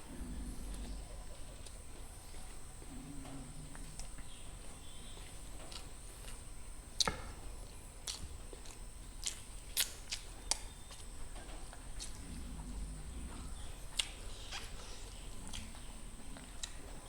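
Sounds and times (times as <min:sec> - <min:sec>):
chewing clicks: 0:00.1 - 0:06.4, 0:07.0 - 0:17.0
mouth smacks: 0:12.0 - 0:17.0.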